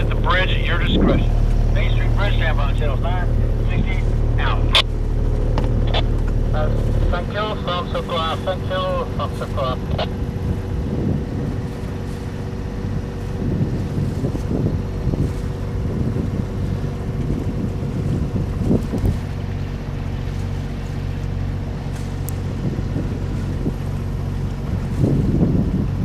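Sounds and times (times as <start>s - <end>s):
boat engine running: 0.0s - 26.0s
wind buffeting microphone: 0.0s - 26.0s.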